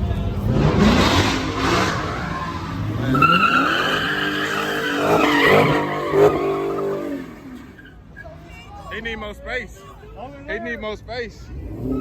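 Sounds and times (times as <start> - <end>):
car engine revving: 0.0 - 7.8
tyres squealing: 1.9 - 8.6.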